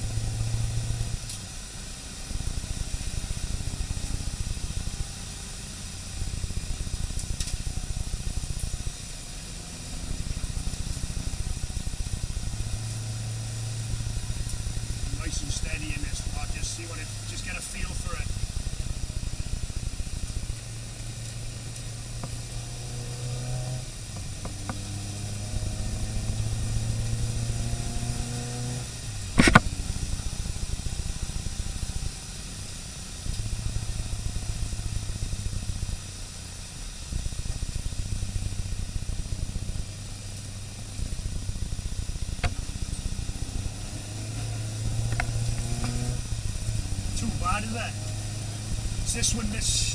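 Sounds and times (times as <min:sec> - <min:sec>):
car engine accelerating: 0:00.0 - 0:49.9
sharp knock: 0:29.4 - 0:29.7.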